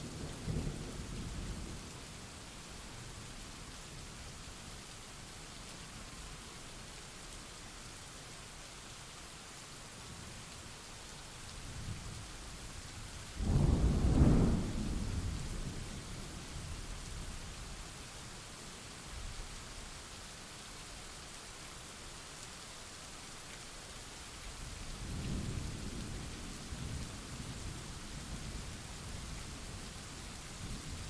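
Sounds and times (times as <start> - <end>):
steady rain: 0.0 - 31.0
thunder rumbling and cracking: 13.4 - 15.4.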